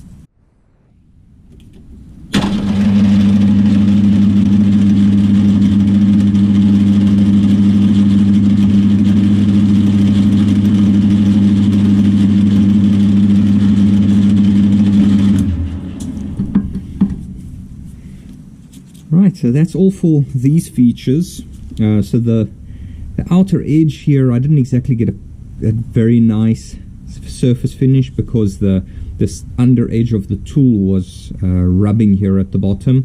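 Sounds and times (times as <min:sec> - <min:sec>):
lathe motor humming: 0:02.3 - 0:18.0.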